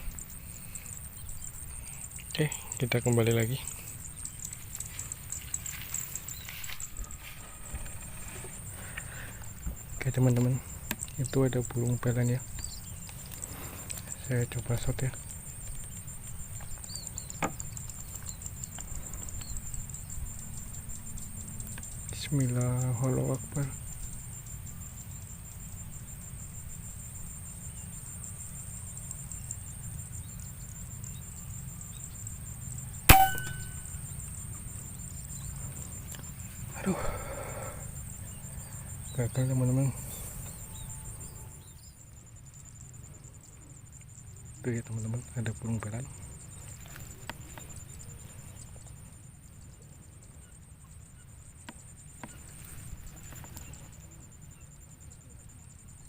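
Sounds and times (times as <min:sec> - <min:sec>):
air rifle shot: 0:33.1 - 0:33.8.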